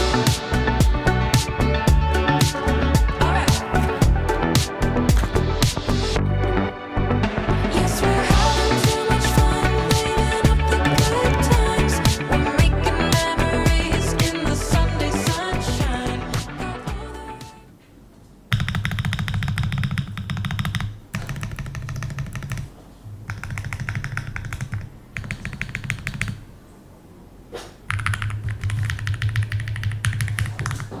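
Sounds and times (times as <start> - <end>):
fast typing on mechanical keyboard: 18.5 - 22.7, 23.3 - 26.4, 27.9 - 31.0.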